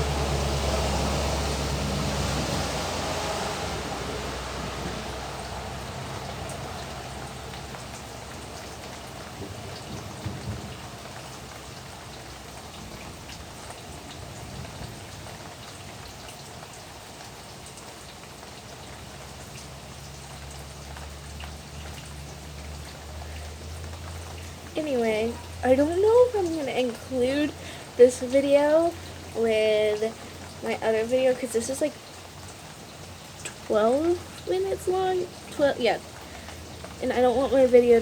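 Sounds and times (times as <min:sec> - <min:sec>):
rain falling steadily: 0:00.0 - 0:38.0
drops ticking: 0:19.3 - 0:38.0.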